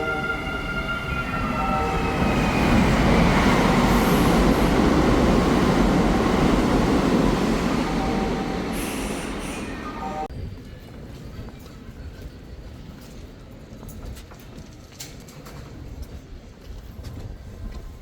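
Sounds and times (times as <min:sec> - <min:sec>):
train passing rumble: 0:00.0 - 0:11.2.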